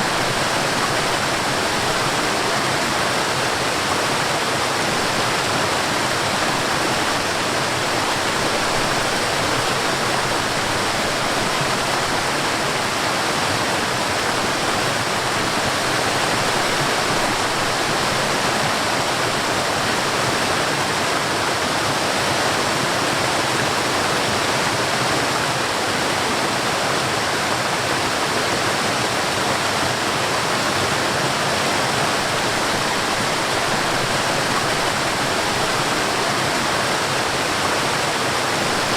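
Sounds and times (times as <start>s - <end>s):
stream and waterfall rushing: 0.0s - 38.9s.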